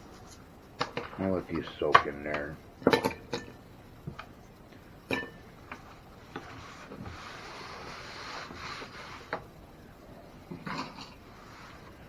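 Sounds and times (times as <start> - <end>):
rubbing scraping noise: 6.4 - 9.3.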